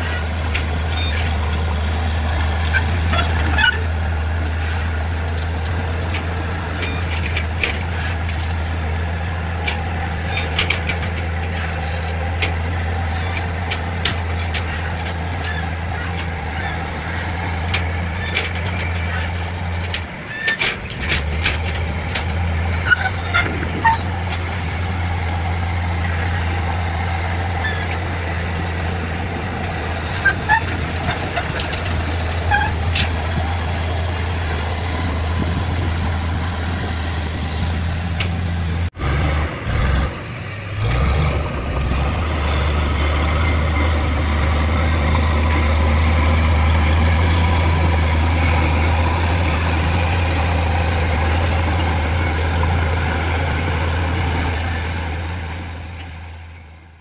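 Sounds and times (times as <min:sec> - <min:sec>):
excavator diesel engine running: 0:00.0 - 0:57.0
high squeals: 0:02.6 - 0:04.0, 0:30.2 - 0:32.8.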